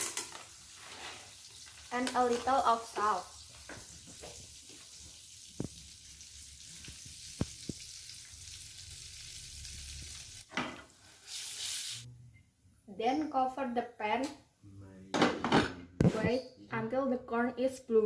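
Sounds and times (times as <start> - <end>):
corn sizzling in butter: 0.0 - 12.1.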